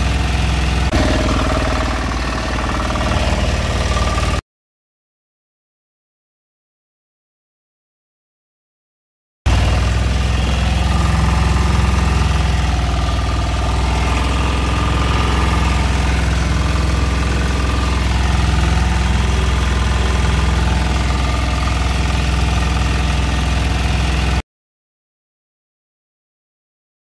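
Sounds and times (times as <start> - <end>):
boat engine humming: 0.0 - 4.4, 9.5 - 24.4.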